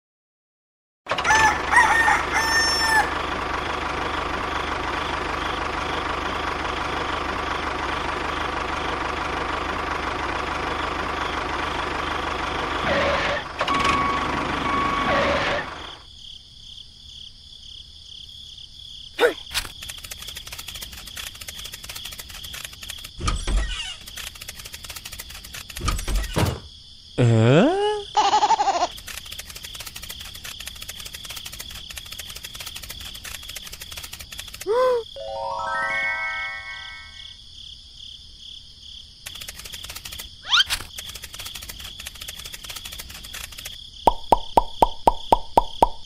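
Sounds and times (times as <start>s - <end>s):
rooster crowing: 1.1s - 3.4s
steady mechanical whir: 19.5s - 26.6s, 28.9s - 34.7s, 39.2s - 43.8s
fast faint ticking: 19.6s - 23.2s, 24.0s - 25.9s, 28.9s - 34.7s, 39.2s - 46.0s.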